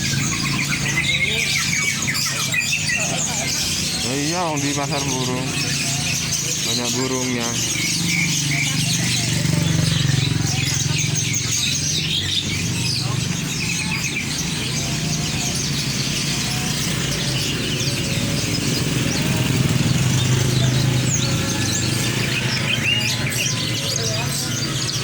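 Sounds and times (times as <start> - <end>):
caged birds chirping: 0.0 - 25.0
faint background voices: 0.0 - 25.0.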